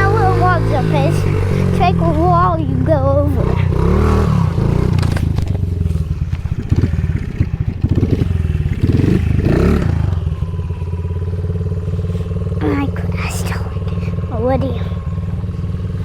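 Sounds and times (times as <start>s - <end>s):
knocks and clatter of bike: 0.0s - 12.6s
motorbike engine revving: 0.0s - 16.0s.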